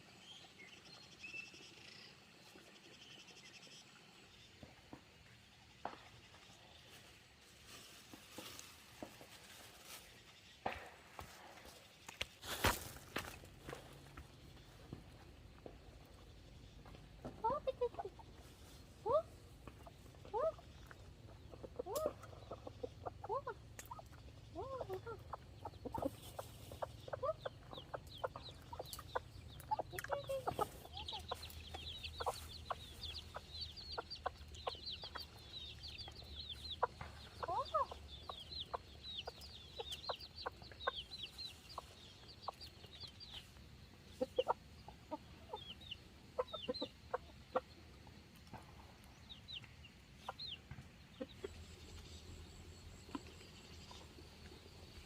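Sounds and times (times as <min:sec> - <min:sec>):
chickens clucking: 0:12.2 - 0:55.0
chicks cheeping rapidly: 0:19.8 - 0:47.8.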